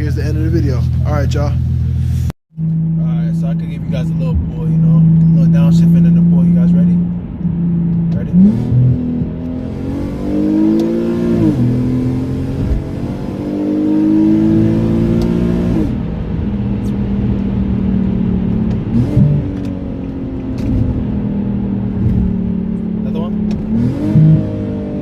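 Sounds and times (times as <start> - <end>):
car engine accelerating: 0.0 - 25.0
engine rev blip: 23.2 - 25.0.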